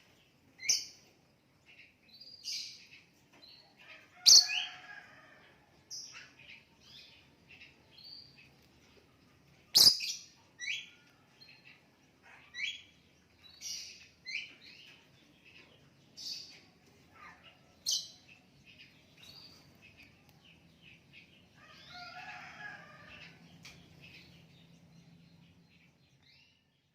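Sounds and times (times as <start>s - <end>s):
lovebird chirping: 4.2s - 4.7s, 9.7s - 14.9s
lovebird chattering: 9.8s - 10.3s.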